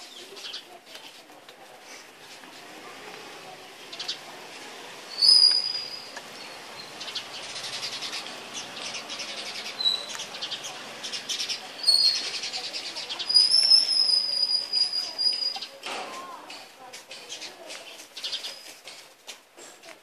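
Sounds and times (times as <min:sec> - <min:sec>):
birds chirping: 0:00.0 - 0:01.2, 0:02.9 - 0:19.0
high bird whistles: 0:05.1 - 0:06.2, 0:13.2 - 0:15.6.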